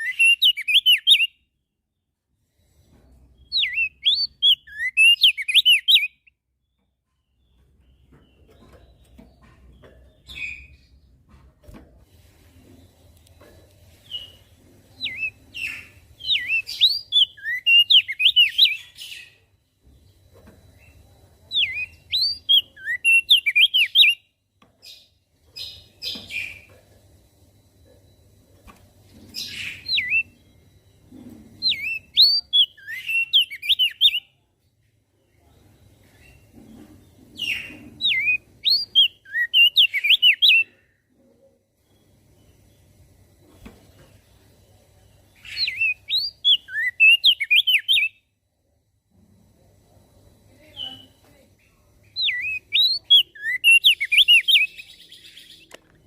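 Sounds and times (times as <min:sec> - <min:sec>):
bird high chirping song: 0:00.0 - 0:02.2, 0:03.3 - 0:11.2, 0:12.8 - 0:26.7, 0:29.1 - 0:34.5, 0:35.4 - 0:40.9, 0:45.2 - 0:48.4, 0:50.6 - 0:55.8.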